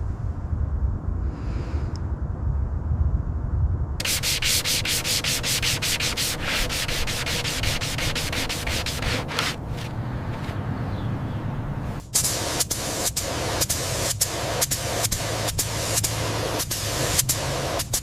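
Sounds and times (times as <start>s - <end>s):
low rumble: 0.0s - 4.1s
sanding strokes: 4.0s - 10.6s.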